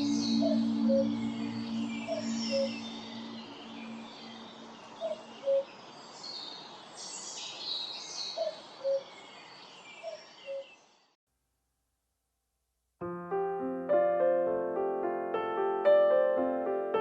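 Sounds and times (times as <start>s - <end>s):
two-note bird call: 0.0s - 5.6s
birds chirping and warbling: 0.0s - 11.1s.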